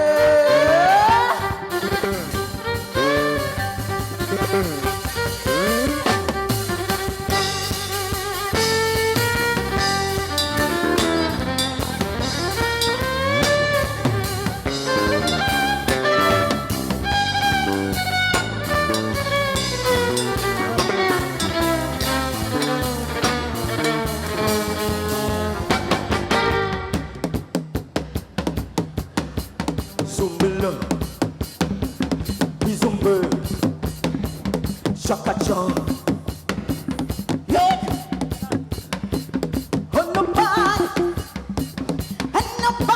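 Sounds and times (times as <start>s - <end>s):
drum kit beat: 0.0s - 42.9s
live band playing: 0.0s - 42.9s
guitar melody: 1.3s - 27.0s
horn-like melody: 9.9s - 27.2s.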